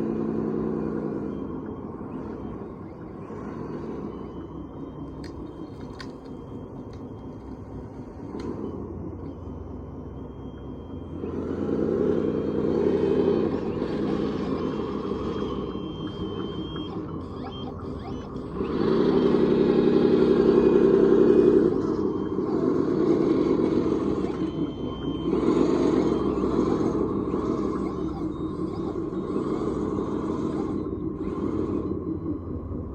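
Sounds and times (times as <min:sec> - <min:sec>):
toy machine motors whining: 0:12.2 - 0:32.0.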